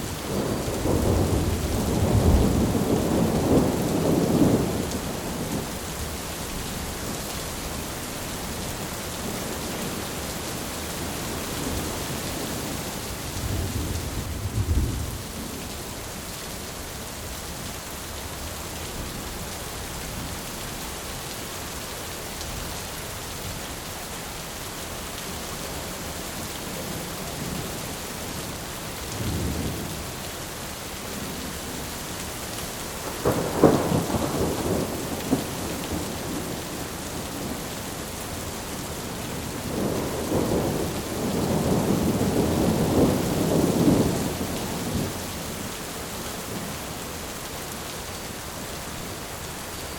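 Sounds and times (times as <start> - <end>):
thunder rumbling: 0.0 - 6.0, 13.4 - 15.4, 33.0 - 37.7, 39.3 - 45.2
steady rain: 0.0 - 49.9.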